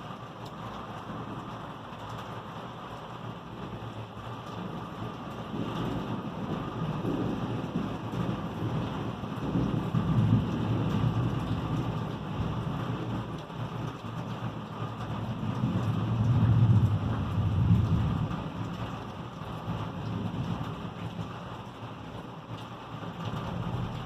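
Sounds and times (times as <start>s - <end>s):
steady rain: 0.0s - 24.0s
thunder rumbling: 4.7s - 13.3s, 15.1s - 21.4s.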